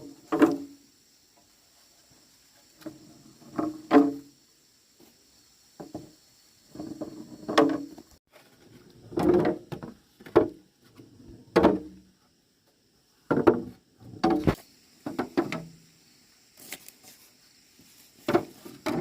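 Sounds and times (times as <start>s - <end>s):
wooden knocks and clatters: 6.8s - 8.1s, 9.1s - 10.6s, 11.5s - 11.9s, 13.3s - 15.6s, 18.2s - 19.0s.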